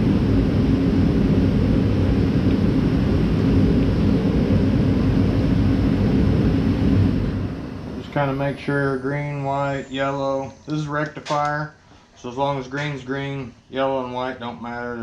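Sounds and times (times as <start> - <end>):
mechanical drone: 0.0 - 11.6.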